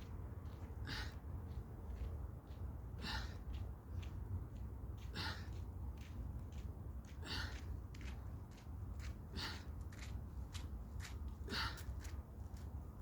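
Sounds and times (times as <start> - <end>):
steady low rumble: 0.0 - 13.0
man breathing forcefully: 0.6 - 1.6, 2.8 - 4.2, 5.0 - 5.9, 7.0 - 8.1, 9.1 - 9.9, 11.4 - 12.2.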